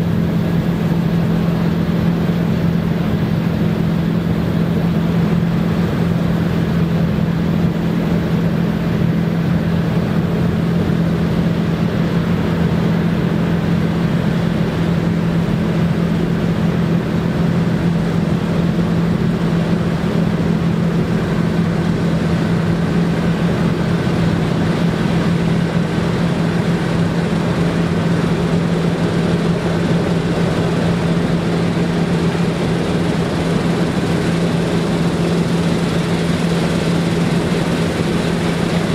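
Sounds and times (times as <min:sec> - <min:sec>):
deep engine hum: 0:00.0 - 0:38.9
threshing machinery noise: 0:18.1 - 0:38.9.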